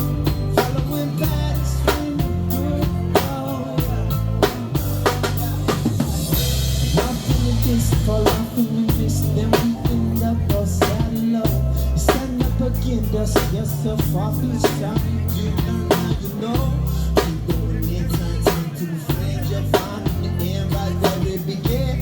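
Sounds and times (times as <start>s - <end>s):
live band playing: 0.0s - 22.0s.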